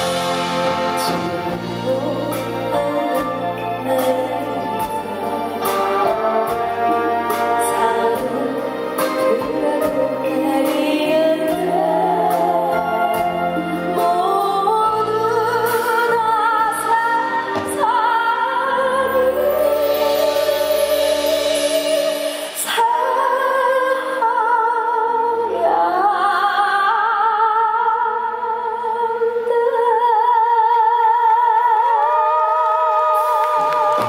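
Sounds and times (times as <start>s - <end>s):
live band music: 0.0s - 25.8s, 33.0s - 34.0s
woman singing with vibrato: 0.0s - 34.0s.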